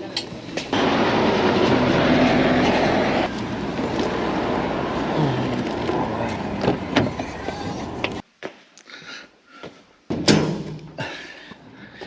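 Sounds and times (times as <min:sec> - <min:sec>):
tram rumbling on track: 0:00.0 - 0:08.2.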